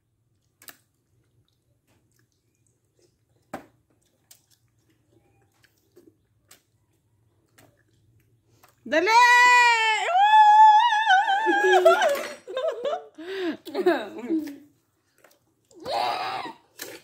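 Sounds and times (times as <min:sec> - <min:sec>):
chewing and mouth smacks: 0:00.2 - 0:08.8, 0:14.4 - 0:15.8, 0:16.7 - 0:17.0.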